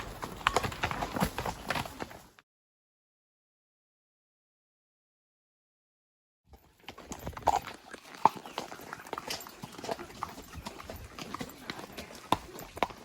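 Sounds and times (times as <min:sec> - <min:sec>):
horse hoofbeats: 0:00.0 - 0:02.4, 0:06.5 - 0:13.0.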